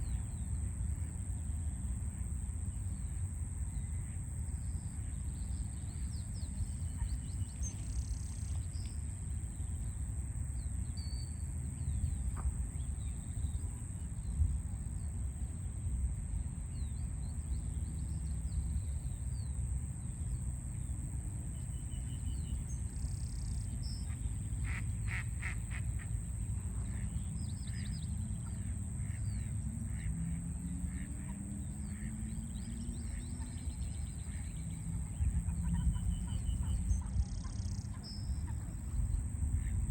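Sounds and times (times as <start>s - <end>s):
birds calling and chirping: 30.9s - 39.8s.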